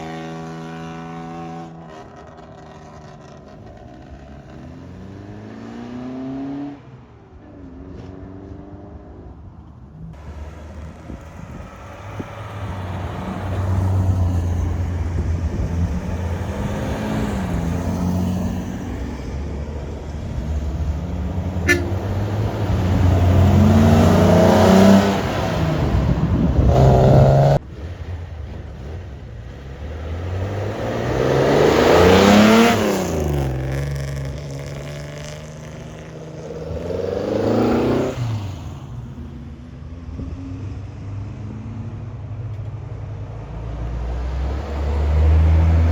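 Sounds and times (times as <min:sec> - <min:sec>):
car engines revving past: 0:10.2 - 0:39.4, 0:43.5 - 0:45.9.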